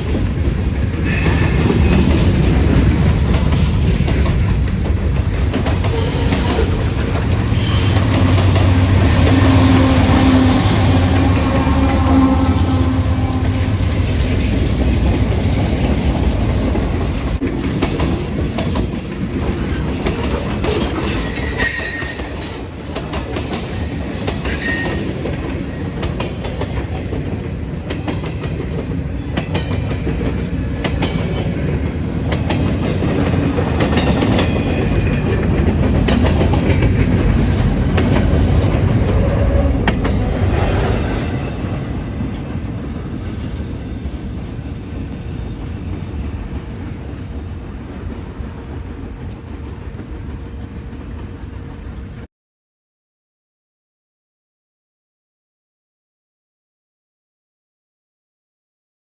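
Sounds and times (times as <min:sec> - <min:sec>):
train wheels clacking over rail joints: 0:00.0 - 0:51.7
high-pitched wheel squeals: 0:23.6 - 0:26.0.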